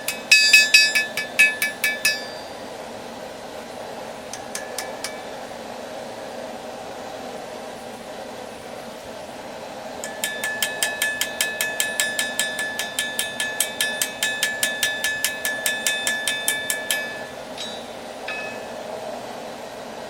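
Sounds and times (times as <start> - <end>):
hammer ringing on anvil: 0.0 - 2.6, 4.4 - 5.5, 10.0 - 18.9
forge burner rushing: 0.0 - 6.8, 8.3 - 19.8.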